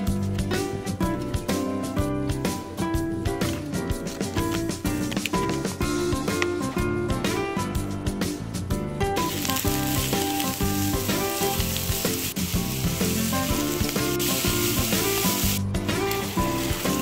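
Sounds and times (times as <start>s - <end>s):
background music: 0.0s - 17.0s
carrots sizzling in hot oil: 9.2s - 17.0s.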